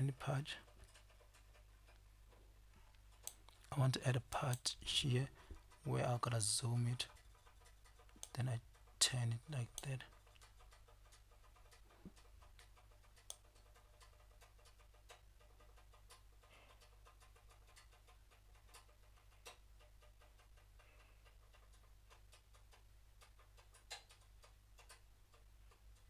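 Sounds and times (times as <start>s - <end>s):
low steady hum: 0.0s - 7.3s, 8.2s - 10.5s
computer mouse clicks: 9.7s - 25.4s.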